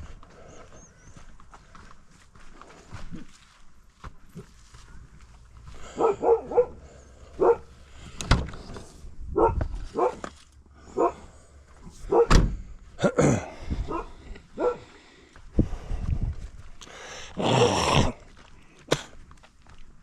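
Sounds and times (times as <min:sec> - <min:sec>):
dog barking: 0:05.9 - 0:07.7, 0:09.4 - 0:10.3, 0:10.9 - 0:11.3, 0:12.0 - 0:12.3, 0:13.9 - 0:15.0
thuds: 0:12.1 - 0:12.7.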